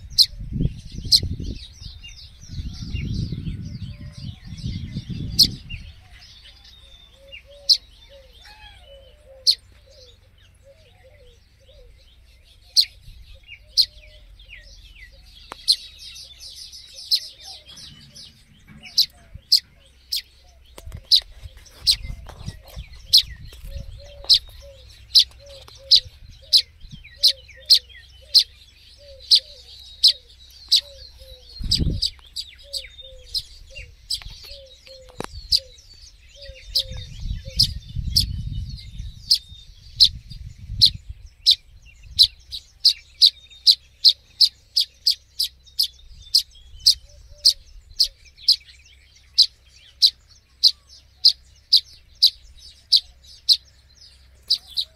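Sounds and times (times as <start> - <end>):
low rumble: 0.0 - 6.4, 12.9 - 27.6
fledgling bird chirping: 0.0 - 54.9.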